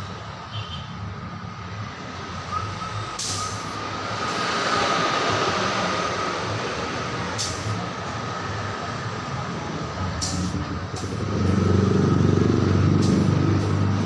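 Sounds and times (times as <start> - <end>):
hiss: 3.2 - 4.5.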